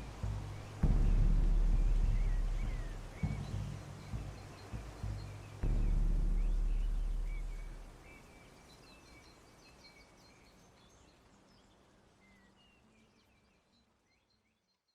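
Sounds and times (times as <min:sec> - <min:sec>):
low music notes: 0:00.0 - 0:08.1
soft hiss: 0:00.0 - 0:14.8
small birds chirping: 0:00.0 - 0:14.9.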